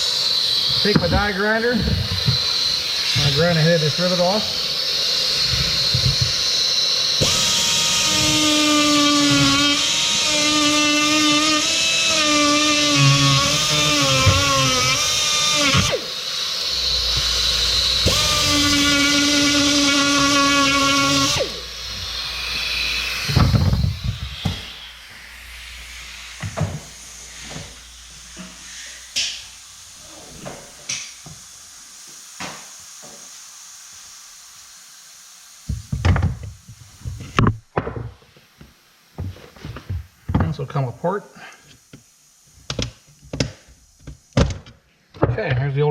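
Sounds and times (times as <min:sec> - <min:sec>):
die grinder whining: 0:00.0 - 0:30.2.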